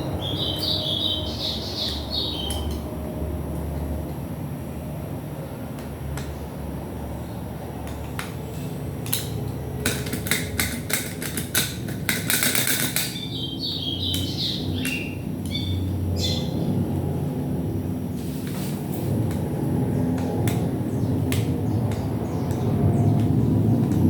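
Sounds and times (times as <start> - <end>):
bird chirps: 0.0 - 2.8, 13.0 - 16.6
parts clicking as pried apart: 9.0 - 13.2.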